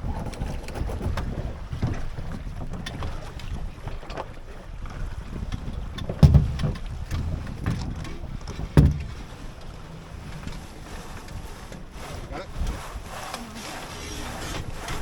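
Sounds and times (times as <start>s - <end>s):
water noise: 0.0s - 15.0s
wind buffeting microphone: 0.0s - 15.0s
sharp knocks: 6.1s - 9.3s.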